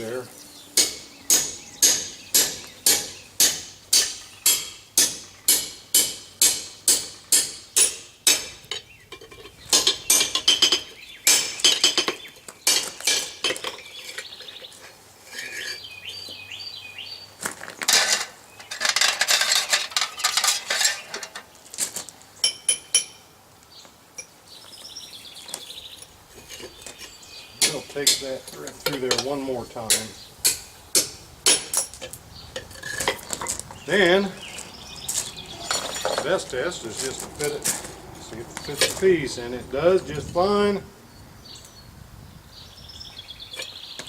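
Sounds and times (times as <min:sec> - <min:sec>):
hammer striking metal on anvil: 0:00.8 - 0:08.6.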